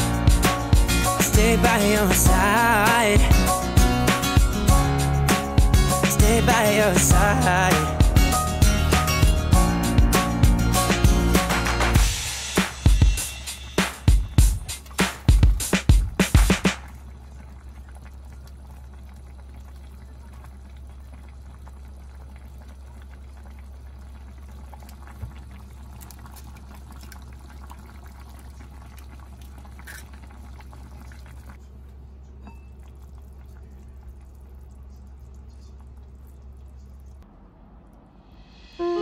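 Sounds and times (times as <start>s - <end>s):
soup bubbling in a pot: 15.9s - 37.2s.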